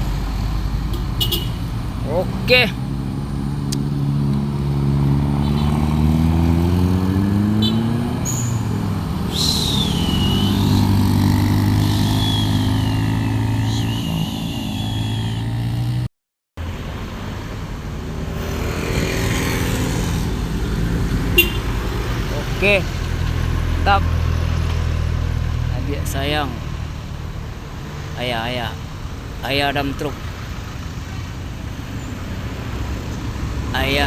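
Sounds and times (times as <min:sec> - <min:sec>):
diesel truck engine climbing: 0:00.0 - 0:34.0
traffic noise: 0:00.0 - 0:34.0
high wavering squeal: 0:08.2 - 0:15.7.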